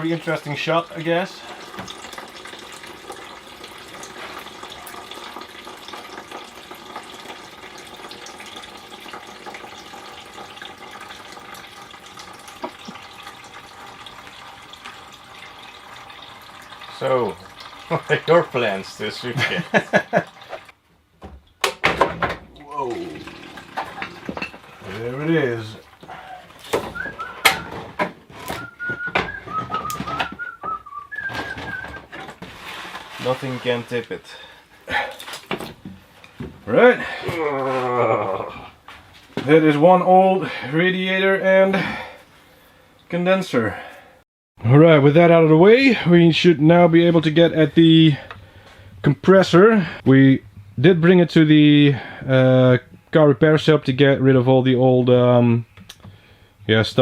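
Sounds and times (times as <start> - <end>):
coolant pouring and splashing: 0.0 - 20.8, 22.5 - 35.8
knocks and clatters of parts: 20.6 - 22.6, 26.6 - 30.4, 31.3 - 33.1
person whistling a tune: 26.9 - 27.8, 28.4 - 32.0.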